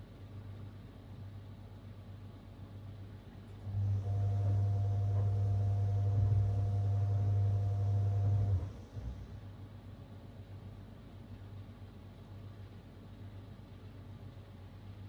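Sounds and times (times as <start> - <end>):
washing machine motor humming: 3.6 - 9.7.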